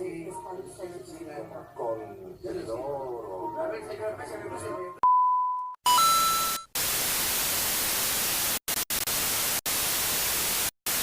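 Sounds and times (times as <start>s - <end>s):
static hiss: 6.4s - 11.0s.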